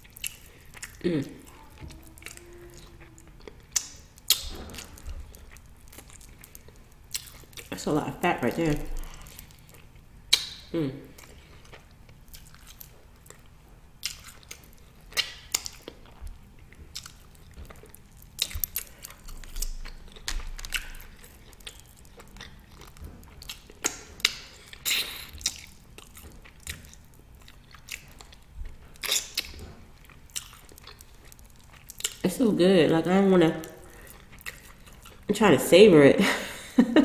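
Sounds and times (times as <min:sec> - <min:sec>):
person chewing meat: 0:00.0 - 0:07.8, 0:08.5 - 0:32.3, 0:33.6 - 0:35.3
mouth clicks and smacks: 0:10.3 - 0:10.7.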